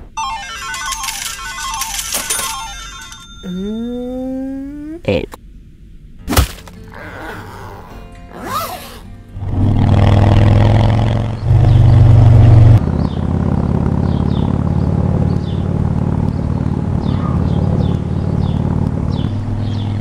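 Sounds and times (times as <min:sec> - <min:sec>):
motorcycle engine running: 0:09.4 - 0:20.0.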